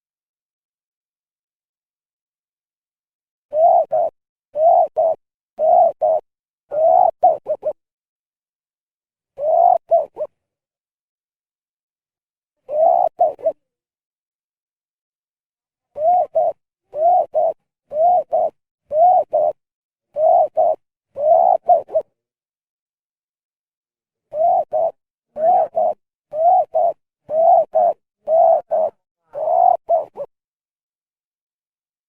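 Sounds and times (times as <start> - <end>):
dove cooing: 3.5 - 7.8, 9.4 - 10.4, 12.7 - 13.8, 16.0 - 22.1, 24.3 - 30.3.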